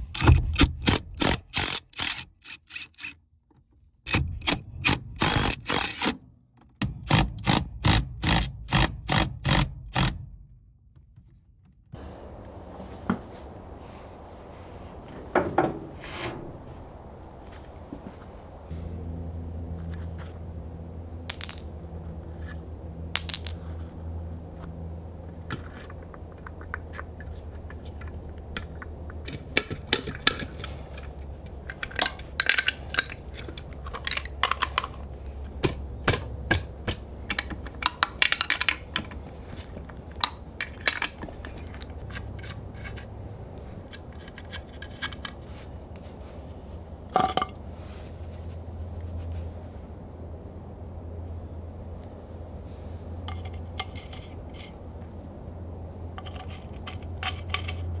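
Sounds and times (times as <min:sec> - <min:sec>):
low hum: 0:12.0 - 0:58.0
metal hand tools clinking: 0:21.2 - 0:23.9, 0:25.2 - 0:45.6.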